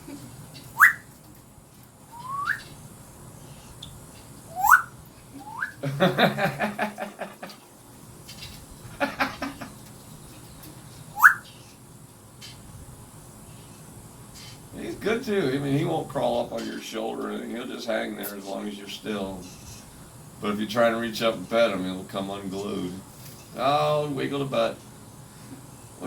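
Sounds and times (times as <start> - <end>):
parrot rapid pulsed chatter: 0.6 - 1.2, 4.4 - 5.8, 11.0 - 12.6
parrot whistling rising notes: 0.8 - 1.1, 2.1 - 2.7, 4.5 - 5.8, 11.2 - 11.5.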